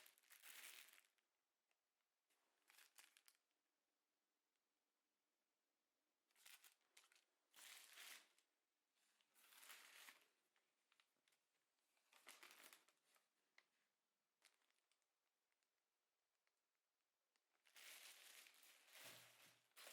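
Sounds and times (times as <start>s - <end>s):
rustling crinkling handling noise: 9.4s - 10.3s, 17.6s - 19.9s.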